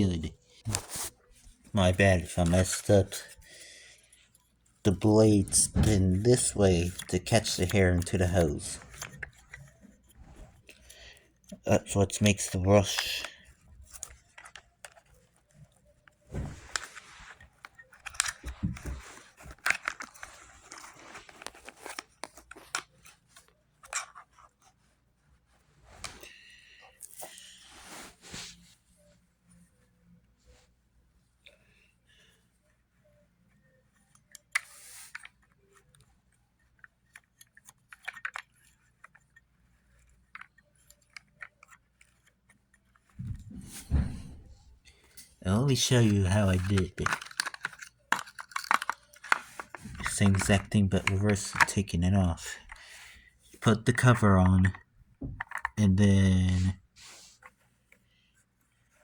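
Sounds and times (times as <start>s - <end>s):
hard plastic parts clicking: 1.7s - 24.6s, 34.1s - 56.7s.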